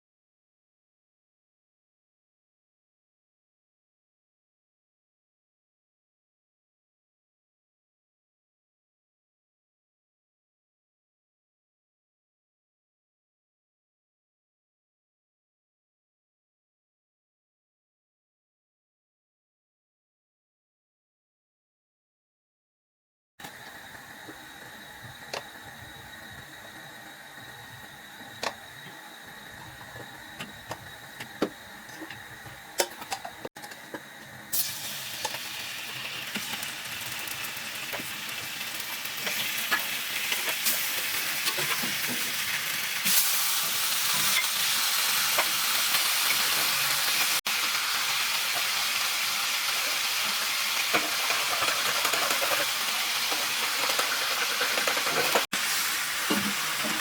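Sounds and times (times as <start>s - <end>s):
food sizzling in hot oil: 34.0s - 57.0s.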